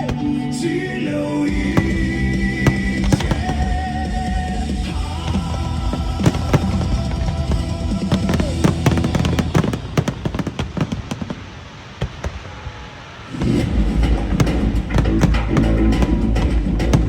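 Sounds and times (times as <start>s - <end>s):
music: 0.0s - 9.6s, 13.4s - 17.0s
fireworks bangs and crackles: 0.0s - 17.0s.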